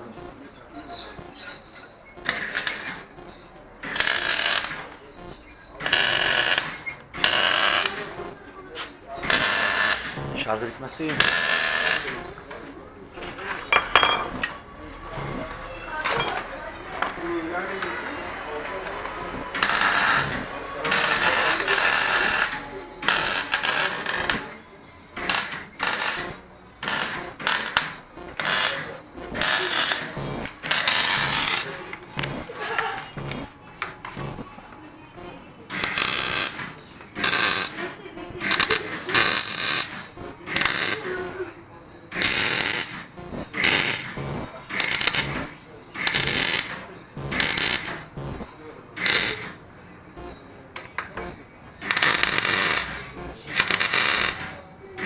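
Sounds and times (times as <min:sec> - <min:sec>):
welding crackling buzz: 0:00.0 - 0:00.4, 0:01.2 - 0:01.4, 0:02.2 - 0:08.4, 0:09.2 - 0:12.2, 0:15.1 - 0:15.6, 0:19.2 - 0:24.4, 0:25.2 - 0:33.5, 0:34.1 - 0:34.4, 0:35.2 - 0:36.6, 0:37.2 - 0:37.8, 0:38.4 - 0:41.1, 0:42.2 - 0:49.6, 0:51.2 - 0:54.6.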